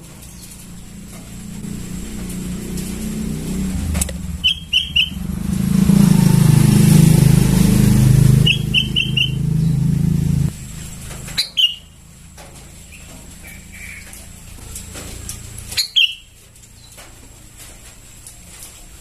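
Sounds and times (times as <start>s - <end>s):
vehicle engine running: 0.0s - 18.2s
bird chicks begging chirps: 3.4s - 10.2s, 15.7s - 17.0s.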